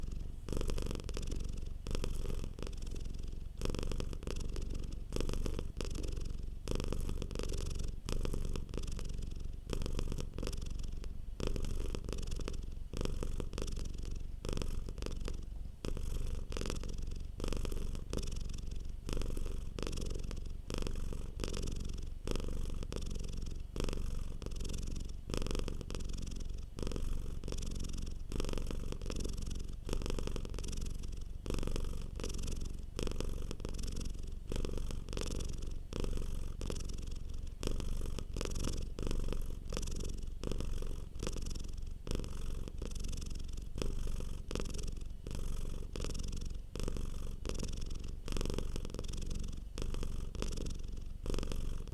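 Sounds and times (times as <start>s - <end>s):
cat purring: 0.0s - 51.9s.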